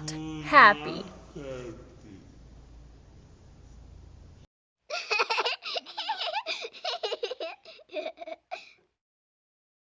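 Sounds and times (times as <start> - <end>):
young child giggling: 4.9 - 8.8.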